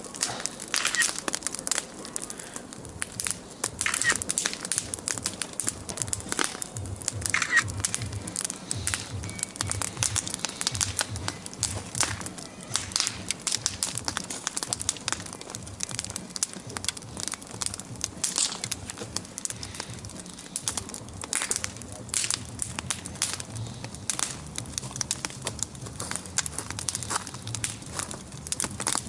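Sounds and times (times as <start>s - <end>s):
bonfire crackling and popping: 0.0s - 29.0s.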